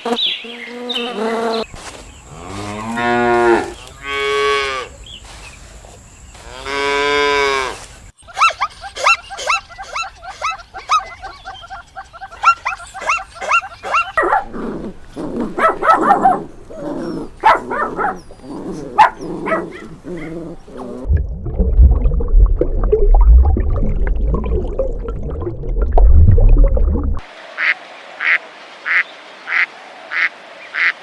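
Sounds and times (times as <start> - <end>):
dog yipping and barking: 8.2 - 21.1
dog whimpering: 8.3 - 21.1.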